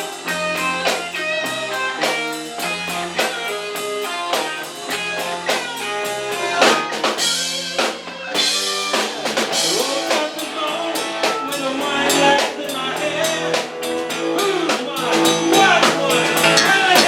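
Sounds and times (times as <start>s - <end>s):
drum kit beat: 0.0s - 17.0s
guitar: 0.0s - 17.0s
live band playing: 0.0s - 17.0s
ringing cymbals: 15.2s - 17.0s.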